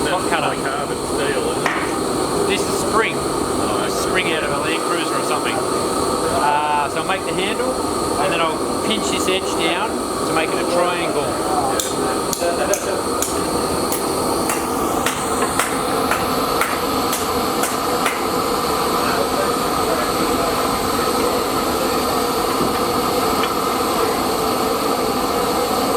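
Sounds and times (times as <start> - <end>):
mechanical running noise: 0.0 - 25.9
hammer striking hot steel: 1.4 - 2.1, 11.7 - 18.9, 22.2 - 24.0.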